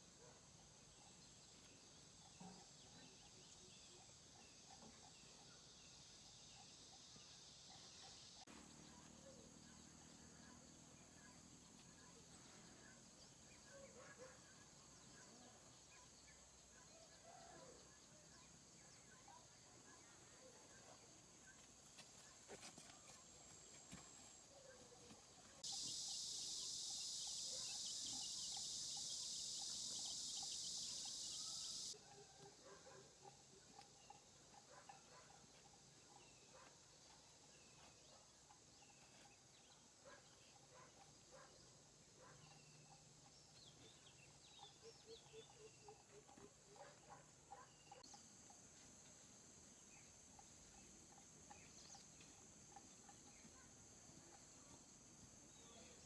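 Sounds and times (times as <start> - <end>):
faint bird chirps: 0.0 - 56.0
insect calls: 0.0 - 56.0
steady high hiss: 25.6 - 32.0.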